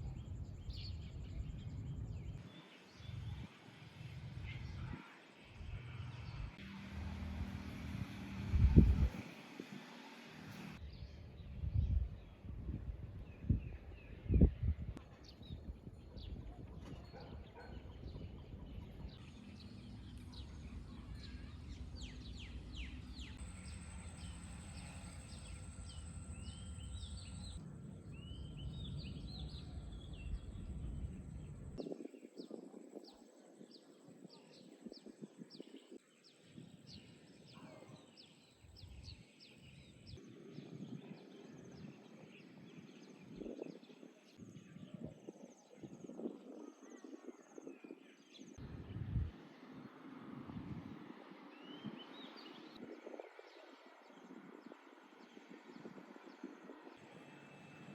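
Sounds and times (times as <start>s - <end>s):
birds chirping: 16.3s - 33.4s
low steady rumble: 18.5s - 31.8s.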